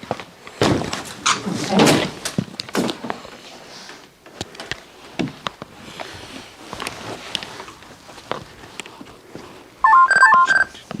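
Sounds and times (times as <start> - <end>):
rustling: 4.7 - 10.6.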